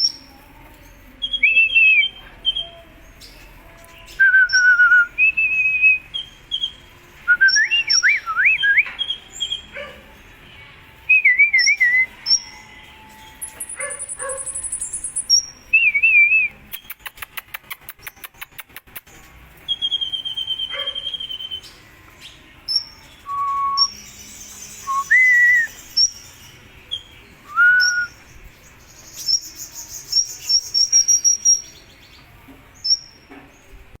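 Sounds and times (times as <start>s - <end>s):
bird whistles and chirps: 4.1s - 9.8s, 11.1s - 18.8s, 19.6s - 21.8s, 22.7s - 31.9s.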